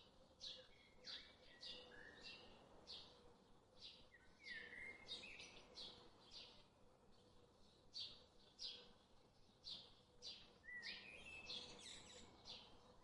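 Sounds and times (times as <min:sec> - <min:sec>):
faint bird chirps: 0:00.0 - 0:06.6, 0:09.6 - 0:13.0.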